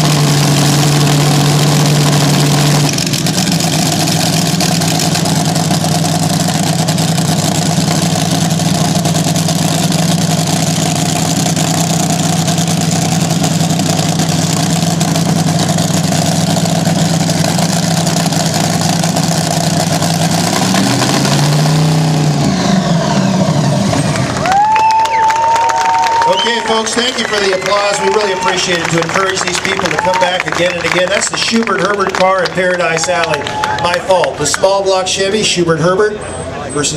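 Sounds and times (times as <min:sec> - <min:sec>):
dragster engine running: 0:00.0 - 0:35.9.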